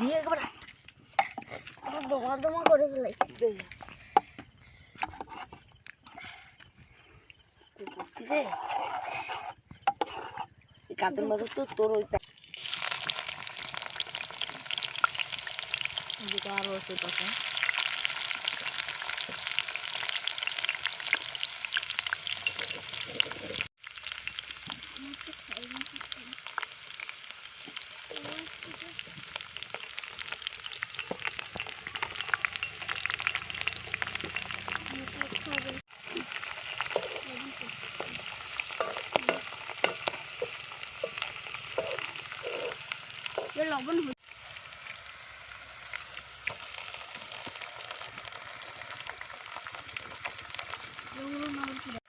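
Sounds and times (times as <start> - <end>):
food sizzling in hot oil: 12.1 - 52.0
clicks and scrapes of stirring: 36.1 - 43.6.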